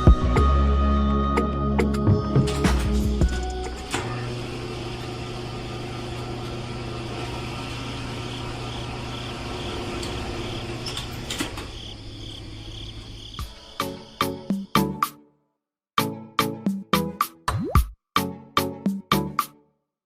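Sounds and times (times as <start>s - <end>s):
small motor humming: 3.6s - 11.3s.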